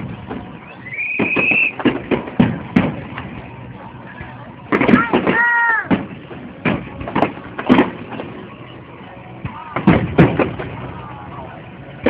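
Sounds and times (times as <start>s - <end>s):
firework shells booming: 0.0s - 3.2s, 4.7s - 8.3s, 9.8s - 10.9s.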